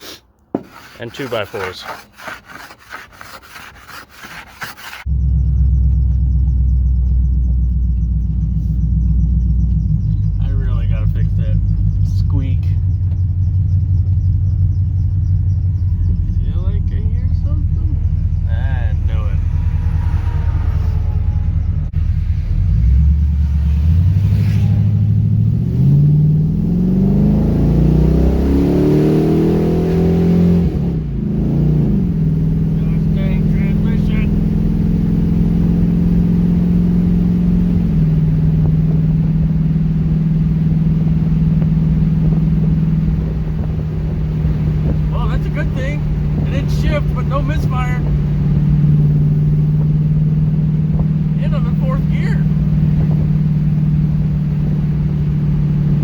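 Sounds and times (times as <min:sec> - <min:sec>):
scraping frost off windshield: 0:00.0 - 0:05.1
car engine rumbling: 0:00.3 - 0:56.0.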